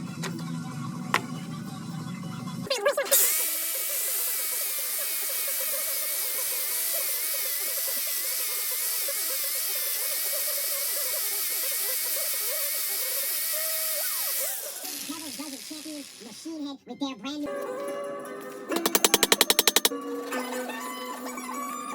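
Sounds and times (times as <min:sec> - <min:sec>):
faint radio music: 0:00.0 - 0:17.8
power tool hissing: 0:03.1 - 0:16.5.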